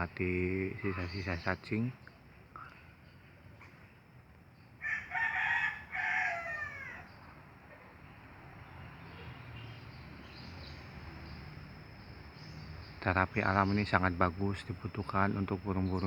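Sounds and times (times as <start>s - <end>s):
rooster crowing: 4.8s - 7.1s.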